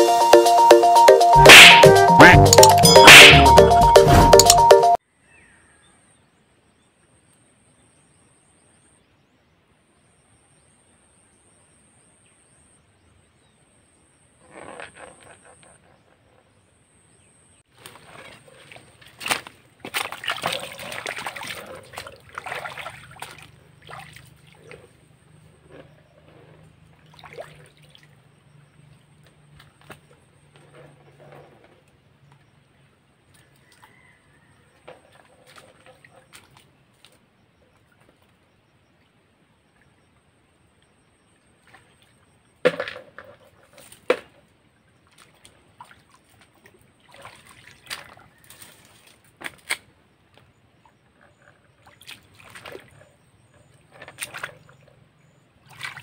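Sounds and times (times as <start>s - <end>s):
stream water splashing around feet: 17.7s - 24.8s, 27.0s - 28.3s, 45.0s - 50.0s, 51.8s - 53.1s, 54.1s - 55.0s, 55.6s - 56.0s.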